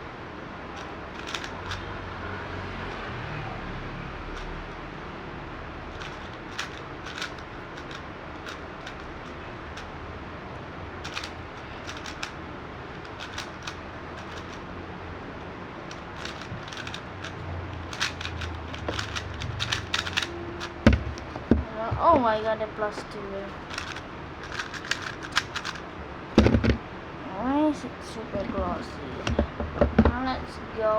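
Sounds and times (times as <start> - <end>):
speed cube plastic clicks: 0.8 - 1.8, 5.9 - 9.9, 11.0 - 12.4, 13.0 - 14.6, 15.9 - 21.5, 23.6 - 25.8.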